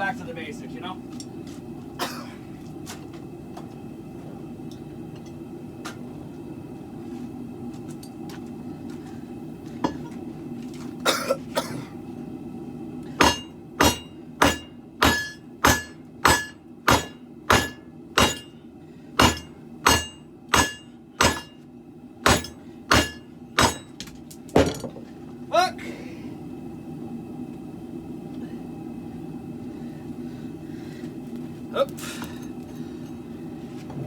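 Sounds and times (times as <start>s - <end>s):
hammer striking steel on anvil: 13.2s - 18.6s, 19.2s - 21.6s, 22.2s - 24.0s.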